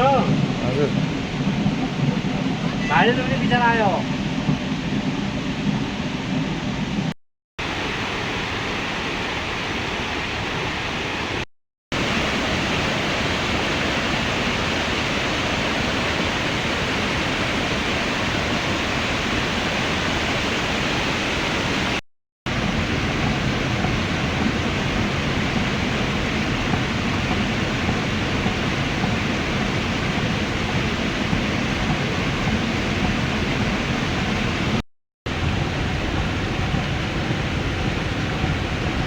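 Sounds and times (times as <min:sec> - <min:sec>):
water rushing: 0:00.0 - 0:39.0.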